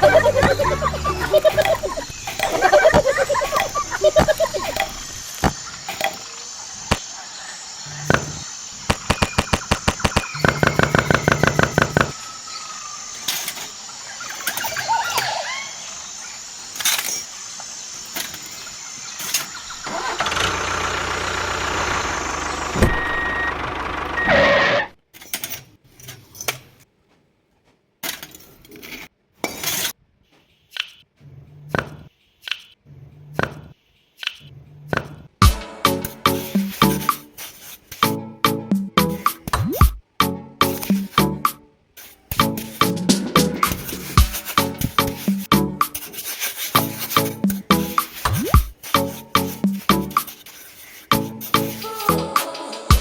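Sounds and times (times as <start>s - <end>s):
small motor running: 7.6s - 12.2s, 19.3s - 24.9s.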